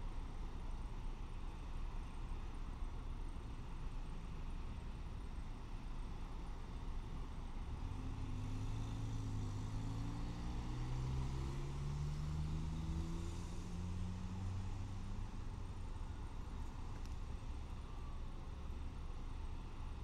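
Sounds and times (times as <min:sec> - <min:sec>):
vehicle engine accelerating: 0:07.9 - 0:15.7.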